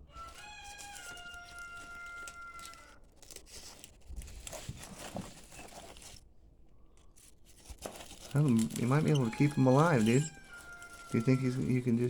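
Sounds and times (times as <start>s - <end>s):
rooster crowing: 0.0s - 3.0s, 8.4s - 12.0s
rustling and crackling: 0.6s - 12.0s.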